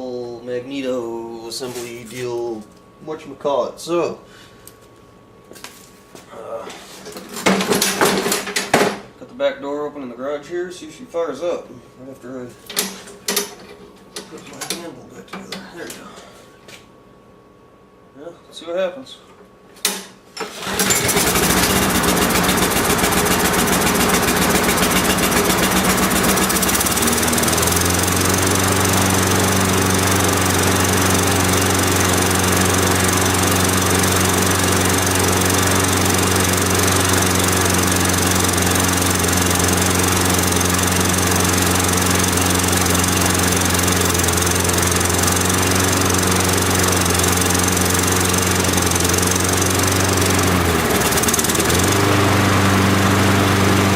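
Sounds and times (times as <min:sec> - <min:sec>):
lawnmower engine running: 0:20.4 - 0:53.9.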